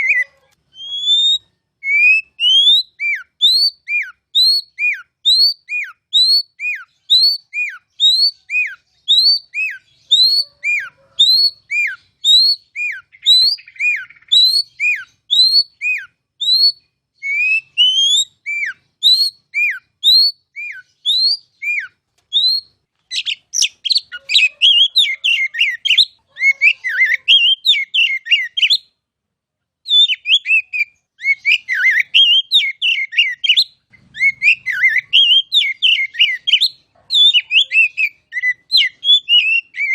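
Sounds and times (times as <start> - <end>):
bird singing whistles and chatter: 0.0 - 28.8, 29.9 - 39.9.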